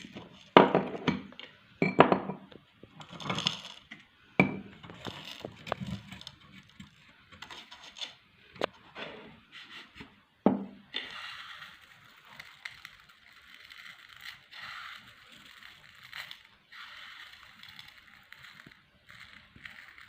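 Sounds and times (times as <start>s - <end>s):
meat grinder crunching pellets: 4.9s - 6.8s, 11.0s - 20.0s.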